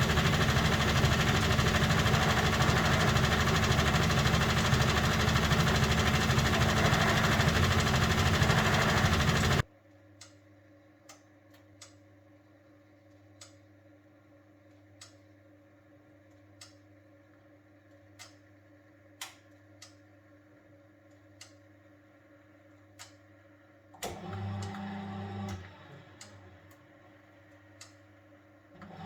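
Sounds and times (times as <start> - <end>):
washing machine humming: 0.0 - 9.7, 24.0 - 27.6, 28.7 - 29.0.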